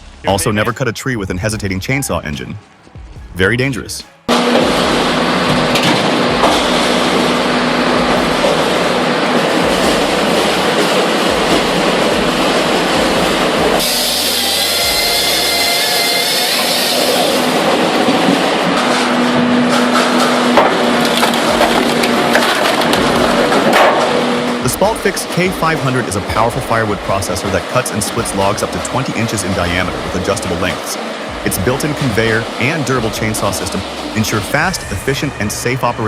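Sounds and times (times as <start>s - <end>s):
chainsaw cutting wood: 4.3s - 17.6s.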